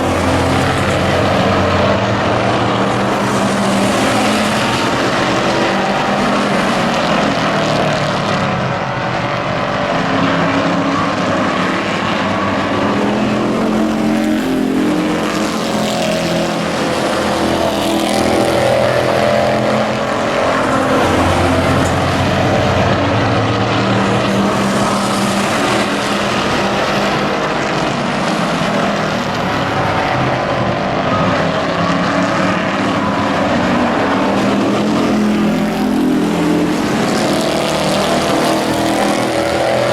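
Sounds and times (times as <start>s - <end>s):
race truck engines running: 0.0s - 39.9s.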